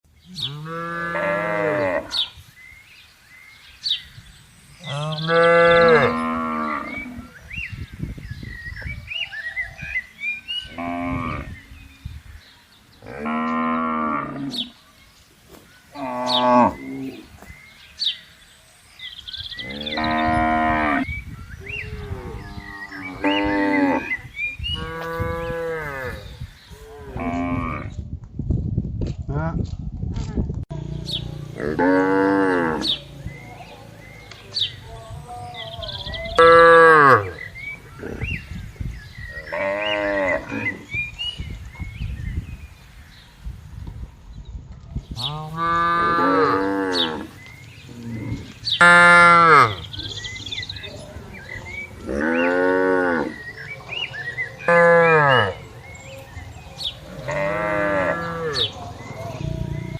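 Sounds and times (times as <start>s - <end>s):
cattle mooing: 31.6s - 33.0s, 57.1s - 58.7s.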